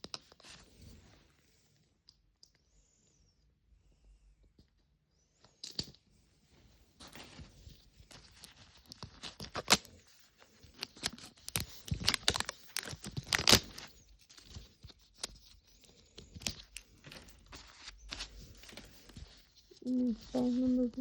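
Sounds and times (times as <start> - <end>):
plastic wrapping tearing and crinkling: 8.2 - 10.0, 10.7 - 14.6.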